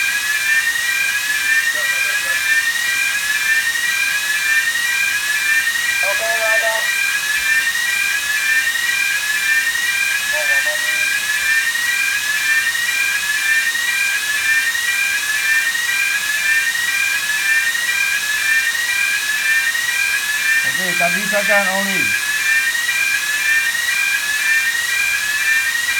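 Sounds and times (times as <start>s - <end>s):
alarm rising tone: 20.5s - 22.3s.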